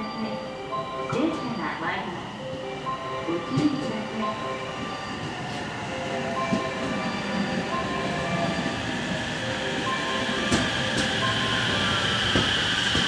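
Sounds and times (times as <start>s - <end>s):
train wheels clattering over rails: 5.1s - 13.0s.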